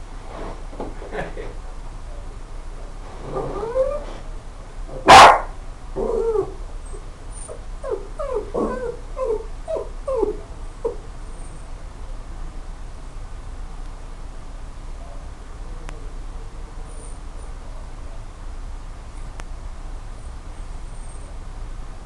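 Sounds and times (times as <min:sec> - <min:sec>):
dog whining and yipping: 0:03.4 - 0:04.1, 0:06.0 - 0:11.5.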